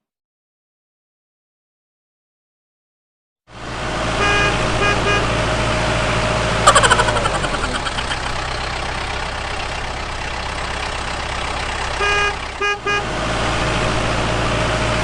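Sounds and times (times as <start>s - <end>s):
vehicle engine running: 3.5s - 15.0s
short horn toots: 4.2s - 5.4s.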